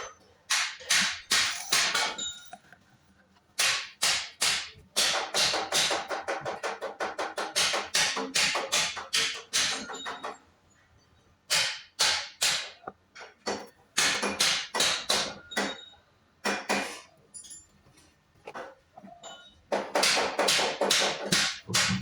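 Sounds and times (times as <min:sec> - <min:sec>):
sharp ringing knocks: 0:03.6 - 0:10.4, 0:13.4 - 0:17.0, 0:19.3 - 0:22.0.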